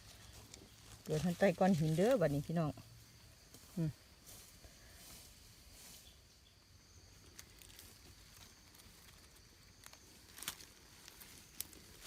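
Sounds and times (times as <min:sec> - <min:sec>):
dry leaf litter crackling: 0:00.0 - 0:02.8, 0:06.9 - 0:12.0.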